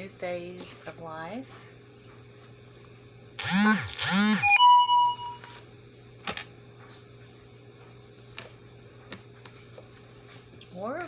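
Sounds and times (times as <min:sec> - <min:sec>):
short ringing tone: 0:04.3 - 0:05.6.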